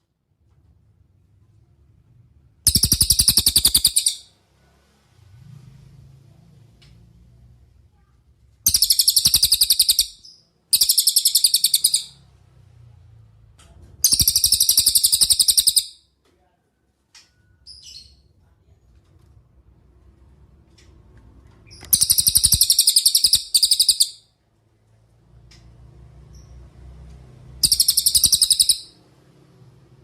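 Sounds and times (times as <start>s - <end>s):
songbird trilling: 2.7s - 4.2s, 8.7s - 12.2s, 14.0s - 15.9s, 21.9s - 24.2s, 27.6s - 29.0s.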